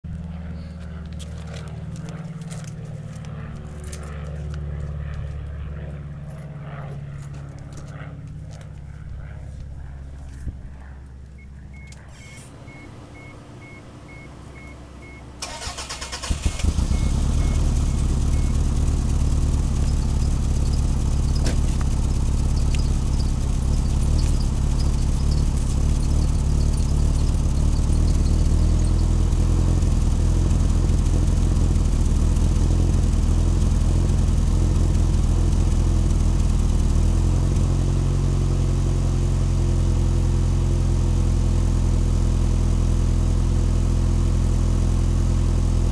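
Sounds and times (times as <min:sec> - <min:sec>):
car engine idling: 0:11.3 - 0:45.9
car engine starter cranking: 0:15.4 - 0:19.0.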